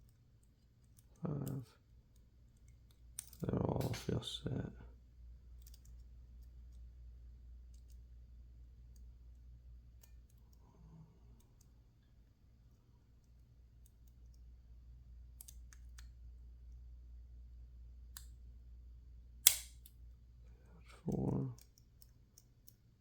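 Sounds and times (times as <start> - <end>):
low steady hum: 0.0 - 23.0
lock pick clicking in padlock: 19.4 - 19.9.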